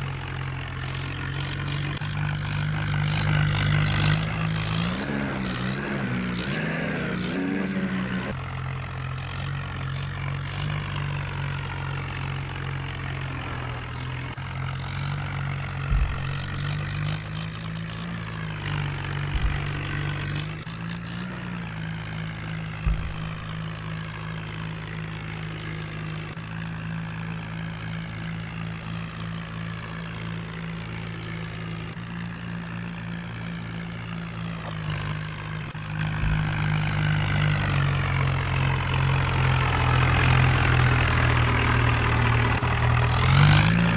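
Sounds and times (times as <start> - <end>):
tractor diesel engine running: 0.0 - 43.9
short low thumps: 15.9 - 16.6, 19.3 - 20.1, 22.8 - 23.6.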